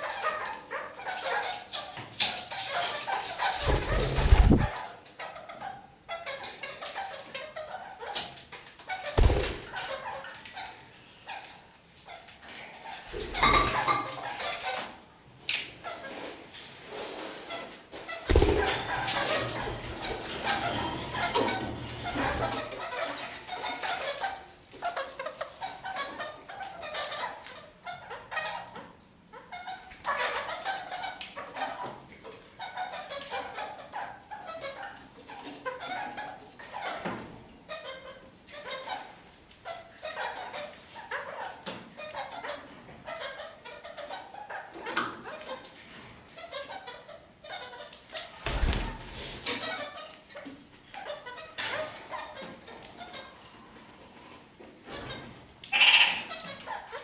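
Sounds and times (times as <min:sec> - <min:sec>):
parakeets chattering and calling: 0:03.4 - 0:04.7, 0:09.0 - 0:10.0, 0:18.3 - 0:21.3, 0:55.7 - 0:56.9
parakeet chattering calls: 0:55.7 - 0:56.5.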